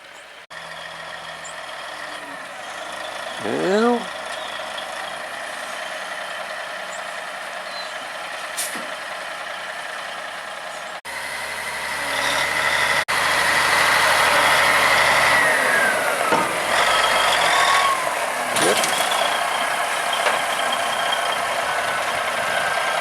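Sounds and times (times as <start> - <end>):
dump truck engine running: 0.0 - 23.0.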